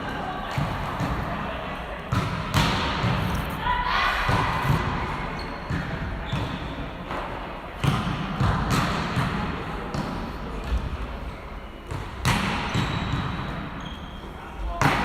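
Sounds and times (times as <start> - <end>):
background murmur: 0.0 - 15.0.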